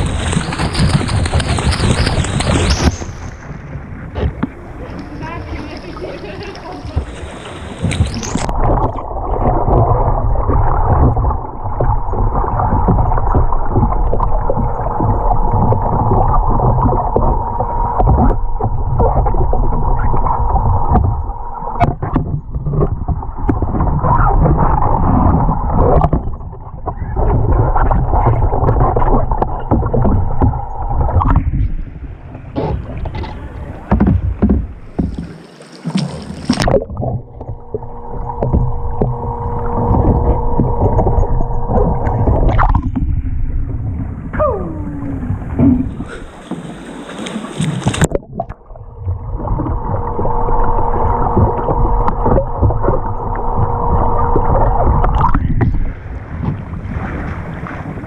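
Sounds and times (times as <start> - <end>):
steady hum: 0.0 - 58.0
water sloshing around kayak: 0.0 - 58.0.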